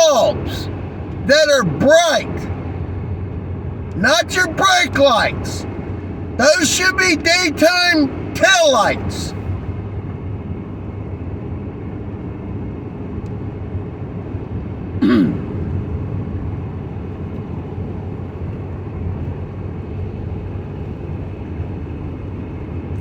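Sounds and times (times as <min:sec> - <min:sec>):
person clearing throat: 0:15.0 - 0:15.6.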